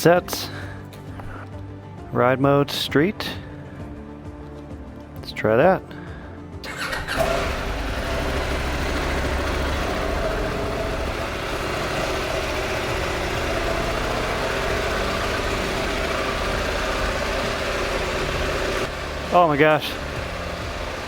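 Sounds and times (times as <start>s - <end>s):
motorcycle engine running: 6.7s - 21.0s.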